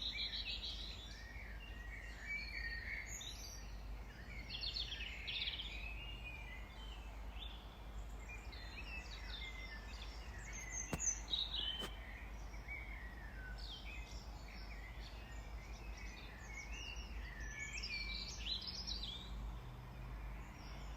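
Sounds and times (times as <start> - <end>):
small birds chirping and singing: 0.0 - 20.9.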